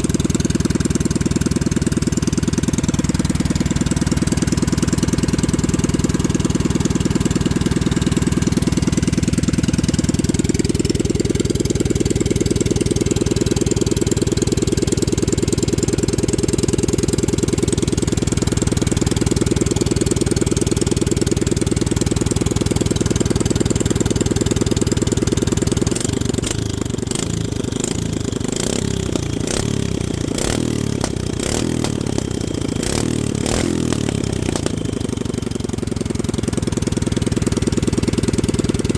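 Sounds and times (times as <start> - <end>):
small engine running: 0.0 - 38.9
exhaust pops: 30.3 - 35.3.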